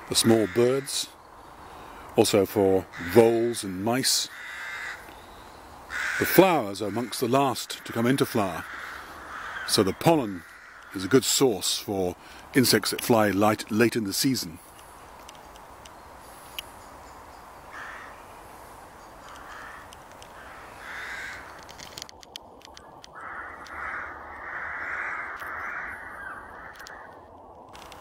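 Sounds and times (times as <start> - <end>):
crows cawing: 0.1 - 2.1, 2.8 - 12.5, 17.7 - 27.9.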